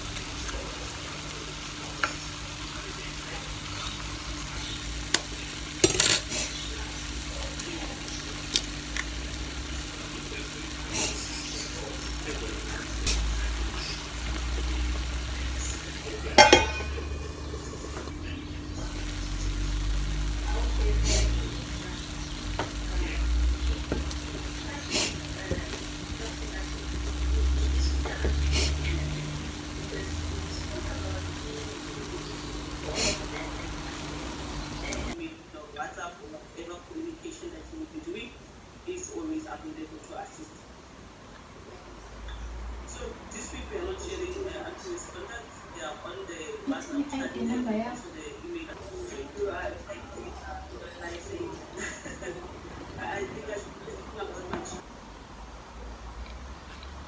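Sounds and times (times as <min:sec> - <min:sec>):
food frying hiss: 0:00.0 - 0:35.3
utensil clinking on cookware: 0:04.6 - 0:07.0, 0:11.1 - 0:18.1.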